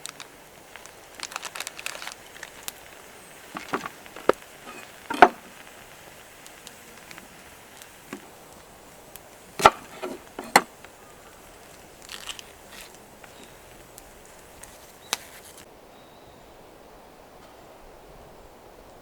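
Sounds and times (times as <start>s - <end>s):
sharp wooden knocks: 3.6s - 5.6s, 9.6s - 10.7s.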